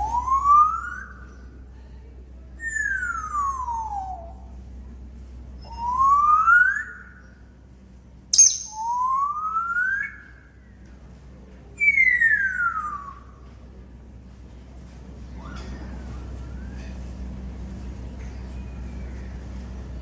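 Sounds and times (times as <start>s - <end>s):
parrot whistling: 8.4s - 10.3s.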